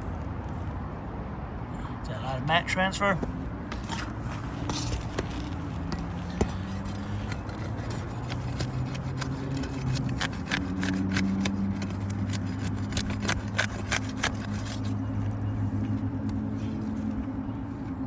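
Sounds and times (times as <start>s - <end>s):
shingles being pried and torn: 3.6s - 15.0s.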